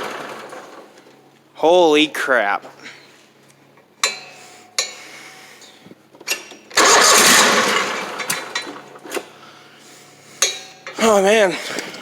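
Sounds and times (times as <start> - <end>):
engine burst: 6.8 - 8.8.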